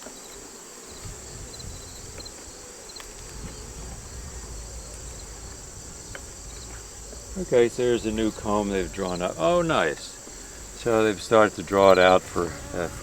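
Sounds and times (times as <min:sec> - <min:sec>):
insects chirping: 0:00.0 - 0:13.0
low rumble: 0:03.1 - 0:13.0.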